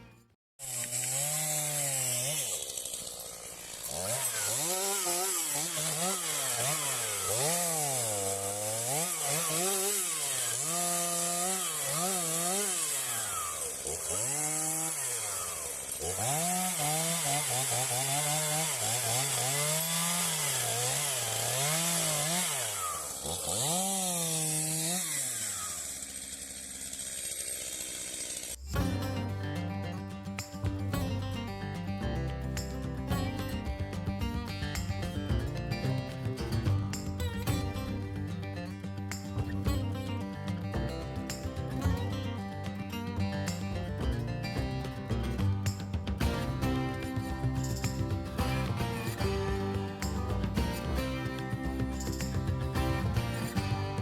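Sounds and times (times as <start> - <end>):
chainsaw revving: 0.6 - 29.6, 43.3 - 54.0.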